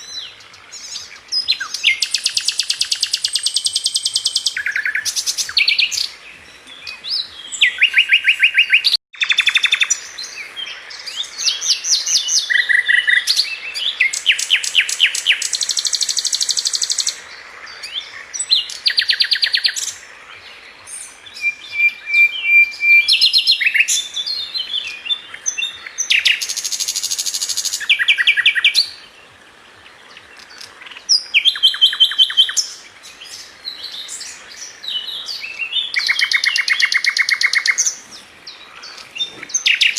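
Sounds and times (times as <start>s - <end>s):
bird singing fast trills: 0.0s - 6.2s, 21.0s - 29.0s.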